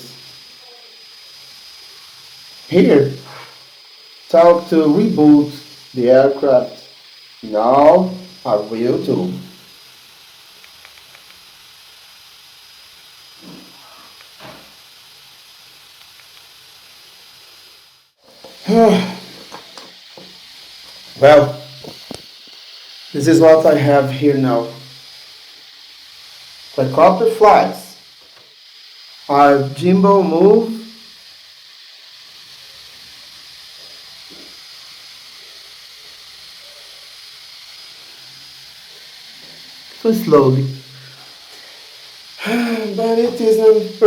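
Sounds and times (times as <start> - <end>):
thin high whine: 0.0 - 11.4, 18.2 - 28.6, 29.2 - 31.6, 35.4 - 44.0
background hiss: 0.0 - 44.0
short vocal sound: 18.6 - 19.3.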